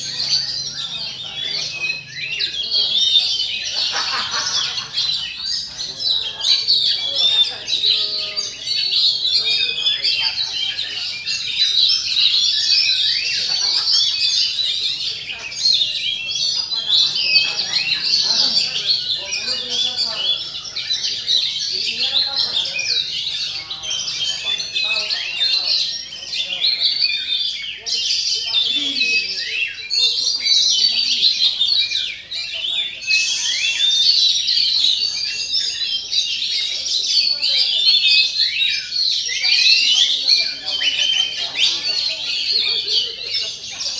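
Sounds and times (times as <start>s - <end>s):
bird singing whistles and chirps: 28.5s - 43.2s.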